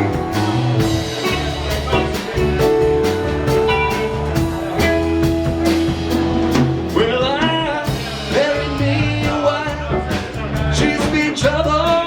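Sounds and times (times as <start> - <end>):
electric guitar bending notes: 0.0 - 7.6
rock band playing: 0.0 - 12.0.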